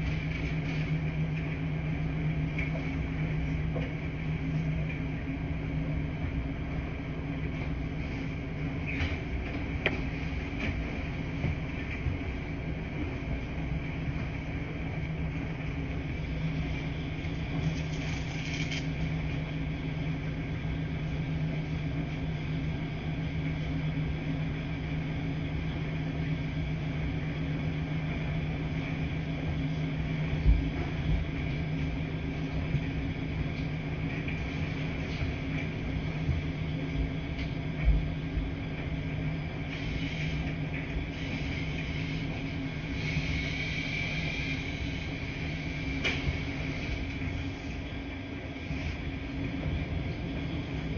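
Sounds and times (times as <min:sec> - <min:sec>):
washing machines humming: 0:00.0 - 0:50.9.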